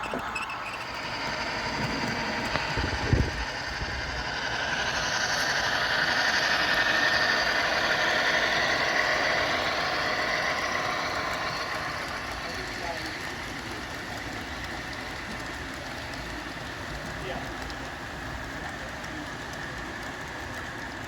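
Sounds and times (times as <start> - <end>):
model train engine sound: 0.0 - 21.0.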